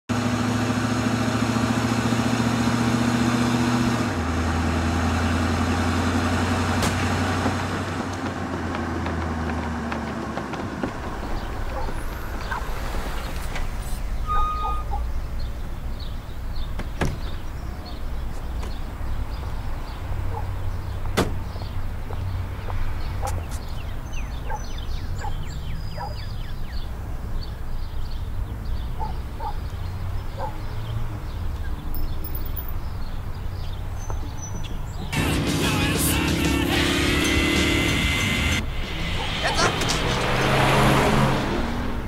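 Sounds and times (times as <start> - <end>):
car engine running: 0.1 - 13.8, 35.0 - 42.0
short beep: 14.2 - 15.0.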